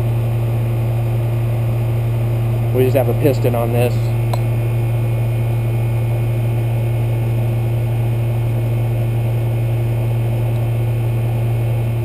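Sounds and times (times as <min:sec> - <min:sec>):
compressor low hum: 0:00.0 - 0:12.0
condenser fan rushing: 0:00.0 - 0:12.0.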